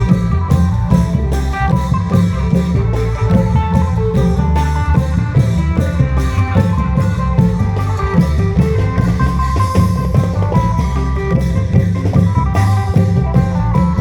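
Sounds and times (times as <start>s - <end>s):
drums beating: 0.0s - 14.0s
melodic reed pipe line: 0.0s - 14.0s.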